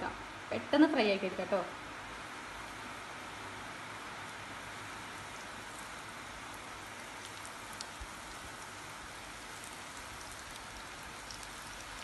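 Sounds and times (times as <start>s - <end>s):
chicken frying in oil: 4.0s - 12.0s
oil popping: 5.2s - 12.0s.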